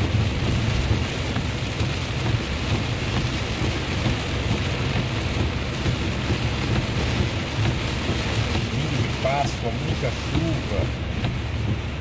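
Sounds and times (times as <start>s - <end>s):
car driving rumble: 0.0s - 12.0s
heavy rain on car windshield: 0.0s - 12.0s.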